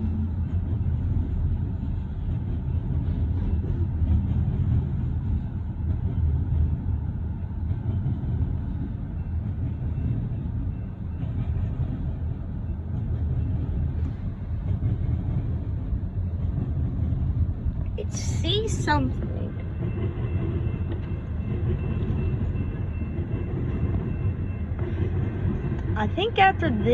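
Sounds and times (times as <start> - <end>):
freight train wheels rumbling: 0.0 - 26.9.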